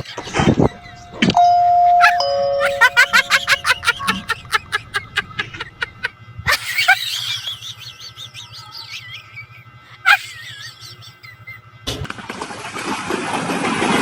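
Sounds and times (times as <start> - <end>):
bird chirping and warbling: 0.1 - 1.3.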